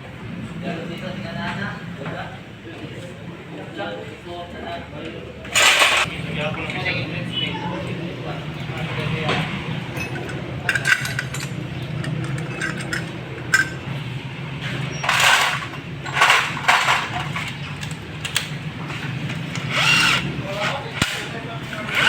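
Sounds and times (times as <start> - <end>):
metal tools clinking and knocking: 5.5 - 6.1, 9.9 - 13.9, 14.9 - 22.0
metal scraping: 14.7 - 17.6.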